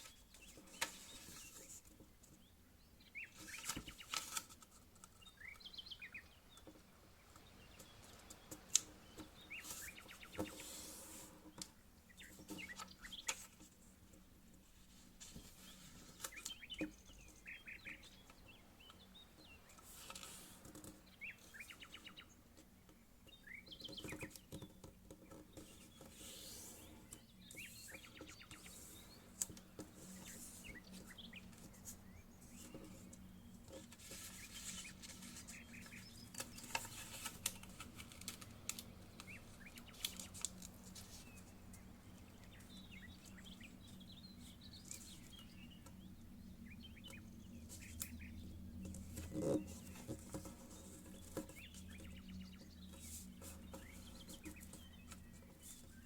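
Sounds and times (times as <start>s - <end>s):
paper being folded: 31.5s - 41.5s.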